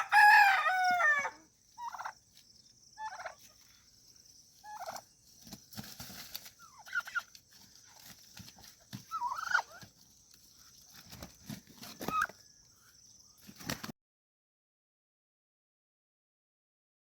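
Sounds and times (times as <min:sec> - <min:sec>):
turkey yelping: 0:00.0 - 0:02.2, 0:03.0 - 0:03.4, 0:04.6 - 0:05.0, 0:06.6 - 0:07.3, 0:09.1 - 0:09.8, 0:12.0 - 0:12.4.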